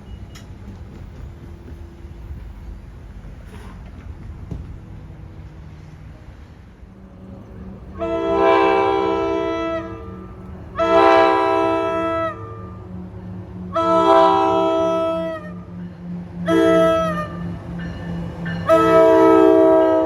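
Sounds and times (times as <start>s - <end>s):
train air horn blasts: 7.9s - 13.0s, 13.6s - 15.7s, 16.4s - 17.6s, 18.6s - 20.0s.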